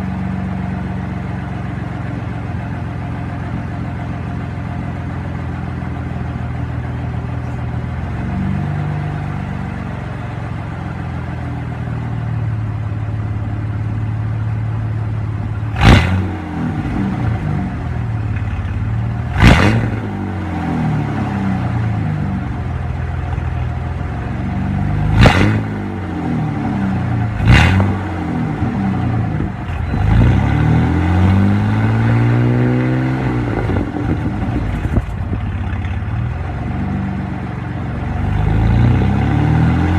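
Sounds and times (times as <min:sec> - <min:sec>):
truck engine revving: 0:15.5 - 0:39.9.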